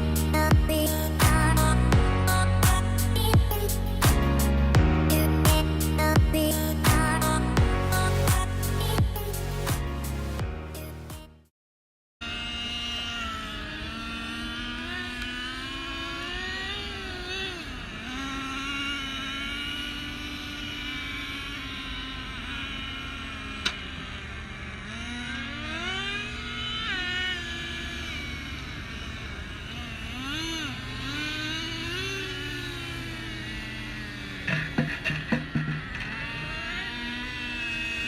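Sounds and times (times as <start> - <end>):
rc car motor whining: 0.0 - 4.5, 12.2 - 38.0.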